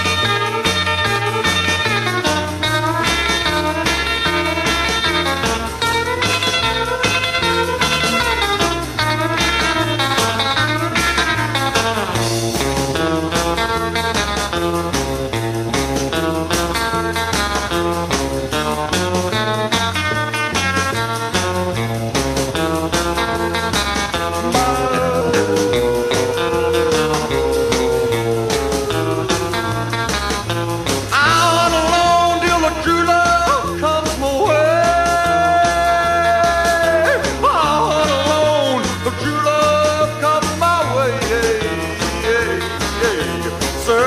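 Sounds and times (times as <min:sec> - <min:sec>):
drums: 0:00.0 - 0:44.0
rockabilly band playing: 0:00.0 - 0:44.0
walking bass line: 0:01.1 - 0:44.0
electric guitar lead: 0:22.6 - 0:31.4
person singing: 0:24.4 - 0:30.0.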